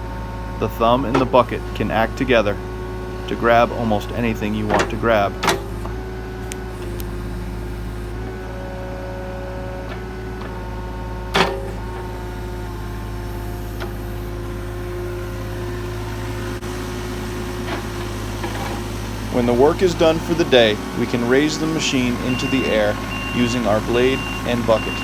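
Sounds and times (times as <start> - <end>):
excavator engine humming: 0.0 - 25.0.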